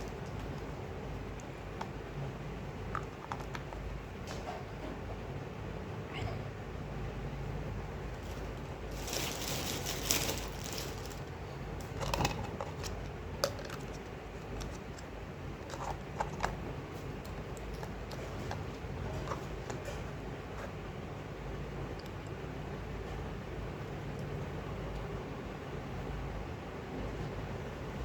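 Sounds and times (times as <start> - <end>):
steady low hum: 0.0 - 28.0
packaging rustling: 8.2 - 12.9.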